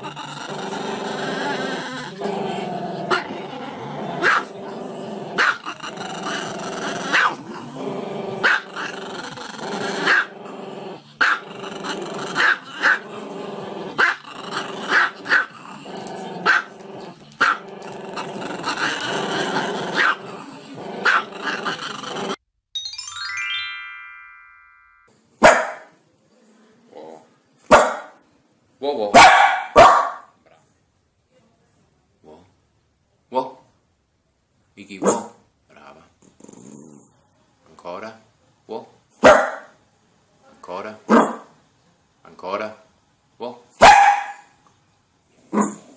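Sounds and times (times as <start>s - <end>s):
dog barking: 4.2s - 4.5s, 5.4s - 5.6s, 7.1s - 7.4s, 16.4s - 16.7s, 20.0s - 20.2s, 21.0s - 21.3s, 25.4s - 25.9s, 27.7s - 28.2s, 29.1s - 30.4s, 35.0s - 35.4s, 39.2s - 39.8s, 41.1s - 41.5s, 43.8s - 44.6s, 45.5s - 45.8s.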